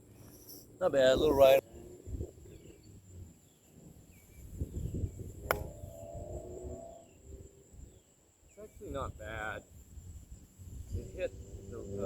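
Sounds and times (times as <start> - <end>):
faint insect chirping: 0.0 - 12.0
golf club striking ball: 5.4 - 6.0.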